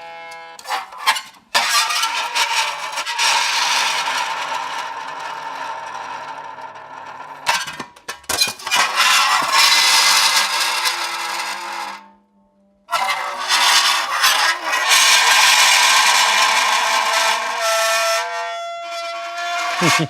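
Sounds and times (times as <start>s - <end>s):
metal screeching on dry ice: 0.0s - 12.2s, 12.9s - 20.0s.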